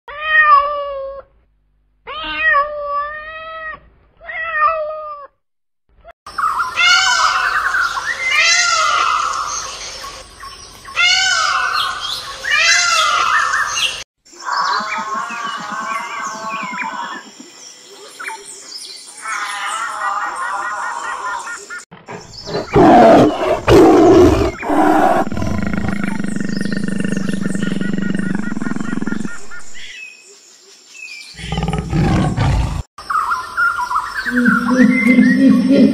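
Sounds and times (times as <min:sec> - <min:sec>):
low pulsing animal call: 0:14.4 - 0:17.4, 0:22.1 - 0:29.9.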